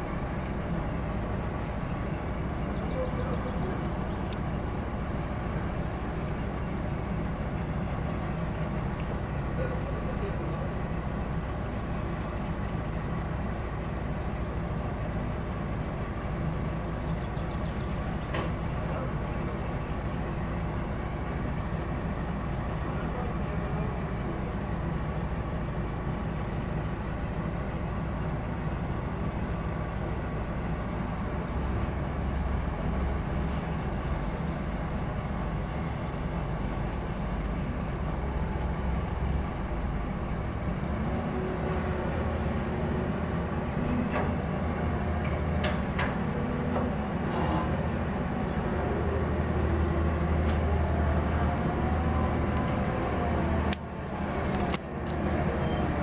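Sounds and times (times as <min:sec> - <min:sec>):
heavy diesel engine rumbling: 0:00.0 - 0:56.0.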